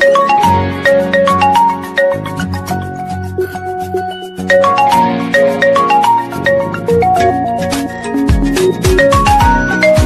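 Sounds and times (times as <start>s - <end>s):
marimba ringtone melody: 0.0s - 10.0s.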